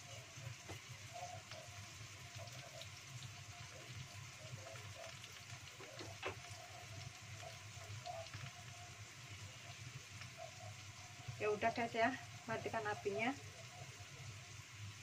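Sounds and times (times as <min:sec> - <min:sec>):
faint sizzle with light crackles: 0:00.0 - 0:15.0.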